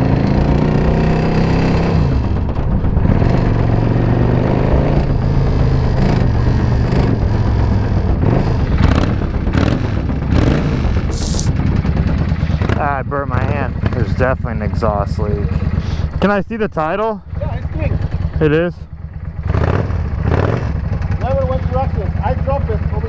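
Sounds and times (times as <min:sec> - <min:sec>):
motorcycle engine revving: 0:00.0 - 0:15.8, 0:17.6 - 0:23.0
short hiss: 0:11.1 - 0:11.5.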